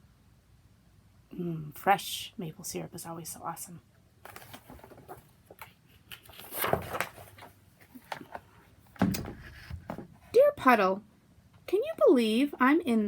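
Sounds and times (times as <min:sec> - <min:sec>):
paper page rustling: 0:04.2 - 0:08.6.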